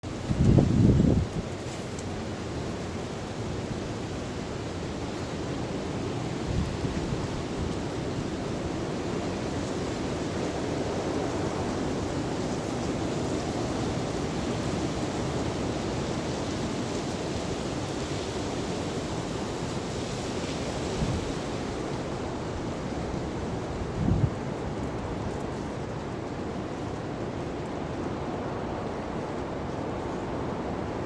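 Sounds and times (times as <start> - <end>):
storm wind blowing hard: 0.0 - 31.0.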